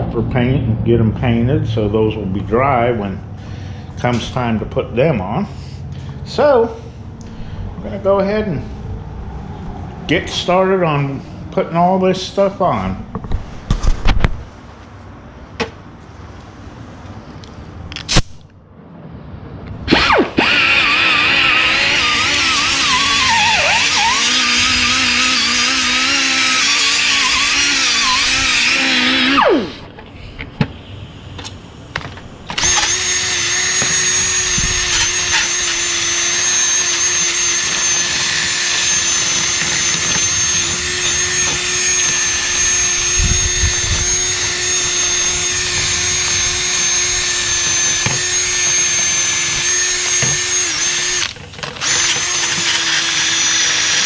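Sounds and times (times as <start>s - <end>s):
electric power tool motor running: 19.9s - 29.9s, 32.5s - 54.0s.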